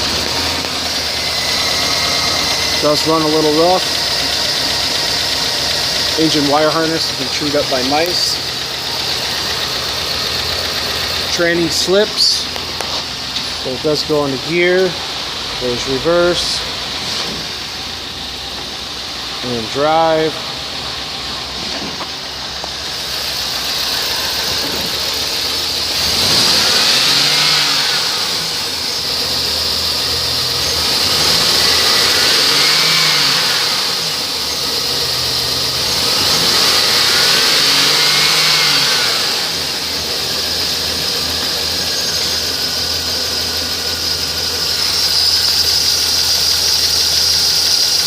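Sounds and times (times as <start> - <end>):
high-pitched squeal: 0.0 - 17.8, 35.8 - 48.0
engine idling and revving: 0.0 - 48.0.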